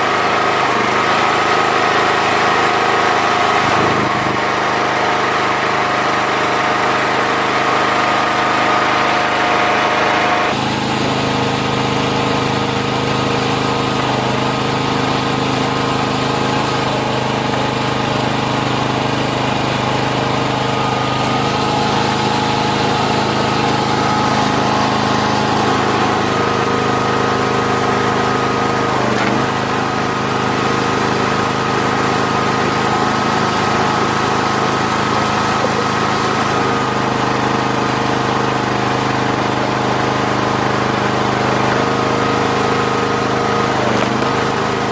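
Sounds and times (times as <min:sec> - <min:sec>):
log splitter engine running: 0:00.0 - 0:44.9.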